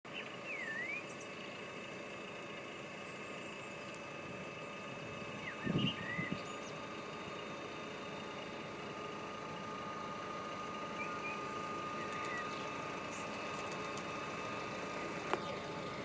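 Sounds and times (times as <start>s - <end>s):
boat engine running: 0.1s - 16.0s
bird-like chirps: 5.4s - 6.8s, 10.9s - 13.4s.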